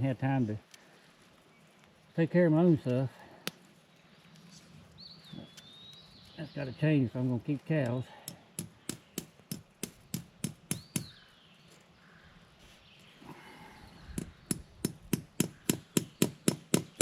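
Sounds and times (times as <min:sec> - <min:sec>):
hammer tapping fence staple: 0:08.2 - 0:11.2, 0:14.1 - 0:17.0.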